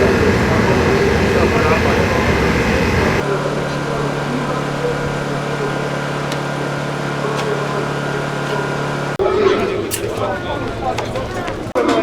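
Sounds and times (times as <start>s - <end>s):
race car engine running: 0.0s - 9.2s.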